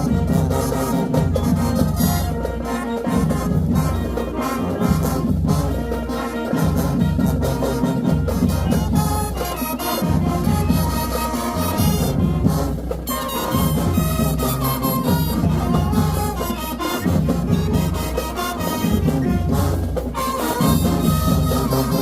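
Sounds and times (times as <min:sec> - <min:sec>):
marching band playing: 0:00.0 - 0:22.0
trombones and trumpets: 0:00.0 - 0:22.0
heavy bass and drums: 0:06.6 - 0:22.0.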